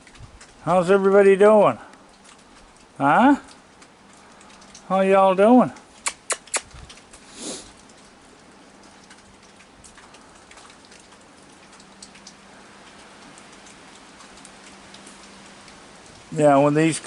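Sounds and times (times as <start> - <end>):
drips ticking: 0.0 - 17.0
steady rain: 0.0 - 17.0
sharp clicks: 6.0 - 7.2.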